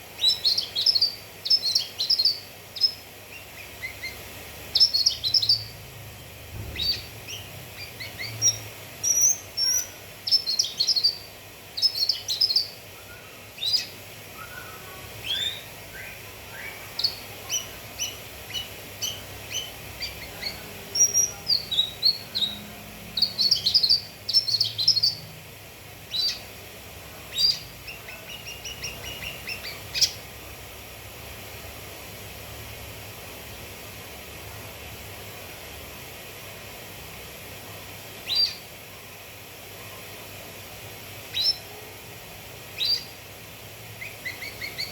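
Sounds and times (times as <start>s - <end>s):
faint steady hiss: 0.0s - 44.9s
bird chirping and whistling: 0.2s - 4.2s, 4.8s - 5.7s, 6.7s - 22.6s, 23.2s - 25.2s, 26.1s - 26.5s, 27.4s - 30.2s, 38.3s - 38.6s, 41.4s - 41.6s, 42.8s - 43.2s, 44.0s - 44.9s.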